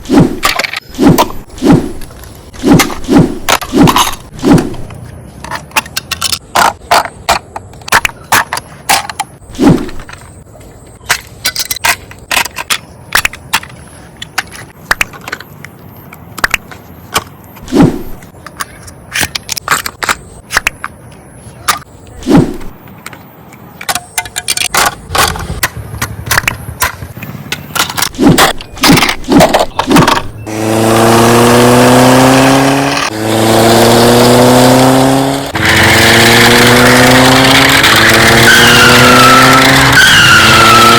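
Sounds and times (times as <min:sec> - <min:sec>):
plastic toy cars rattling: 0:23.9 - 0:30.3.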